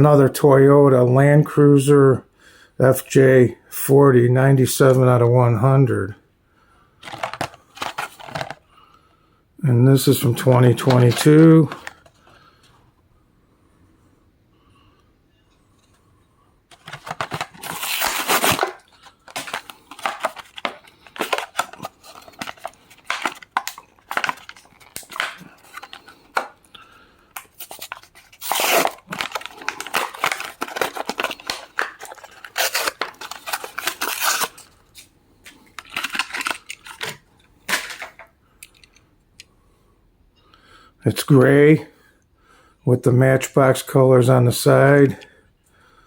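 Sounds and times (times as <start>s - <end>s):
packaging tearing and crinkling: 7.0s - 8.6s, 16.7s - 26.6s, 27.4s - 38.2s.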